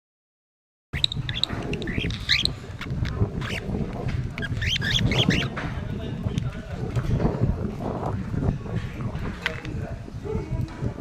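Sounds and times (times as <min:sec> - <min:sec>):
small birds chirping: 0:01.0 - 0:02.8, 0:03.4 - 0:03.7, 0:04.3 - 0:05.6.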